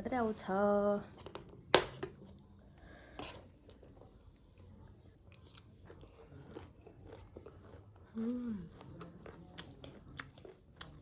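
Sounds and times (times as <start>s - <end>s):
person chewing crunchy snack: 4.6s - 11.0s.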